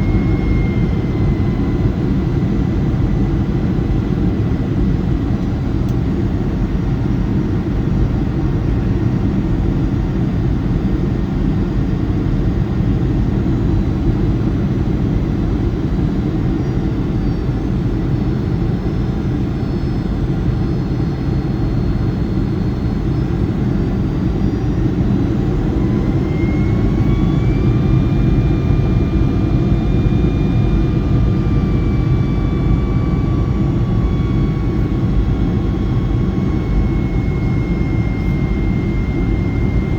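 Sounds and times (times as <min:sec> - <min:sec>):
jet engines rumbling and whining: 0:00.0 - 0:39.9.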